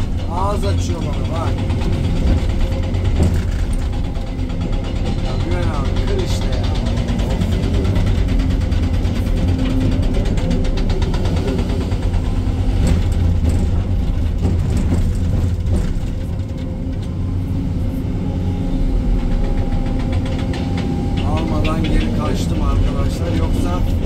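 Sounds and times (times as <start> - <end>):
excavator diesel engine running: 0.0 - 24.0
fast even clatter: 0.0 - 24.0.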